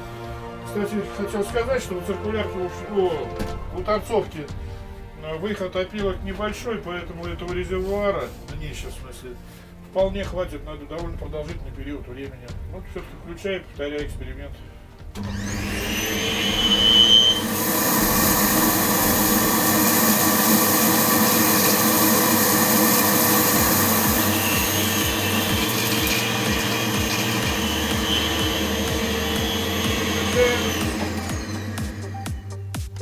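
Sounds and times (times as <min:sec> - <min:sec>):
vacuum cleaner running: 0:15.2 - 0:32.8.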